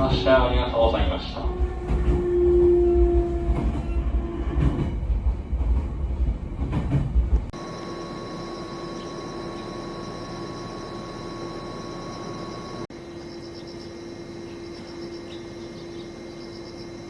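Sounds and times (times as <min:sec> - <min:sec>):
electric train rumbling and clattering: 0:00.0 - 0:17.0
train whine: 0:00.0 - 0:17.0
steady idling hum: 0:07.6 - 0:17.0.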